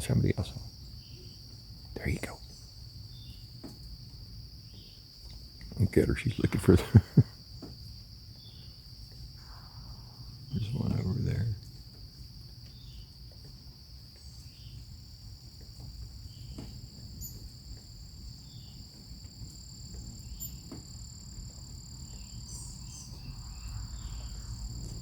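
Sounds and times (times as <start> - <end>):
higher insect trill: 0.0 - 25.0
insects trilling: 0.0 - 25.0
faint chirps and clicks: 0.5 - 6.7, 7.5 - 25.0
low rumble: 9.4 - 11.3.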